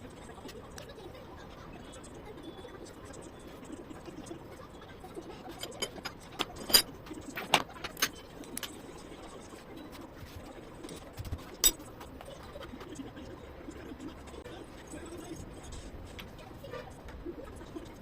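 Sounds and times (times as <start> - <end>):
low background hum: 0.0 - 18.0
metal tools clicking and tapping: 5.4 - 8.8, 11.6 - 11.9.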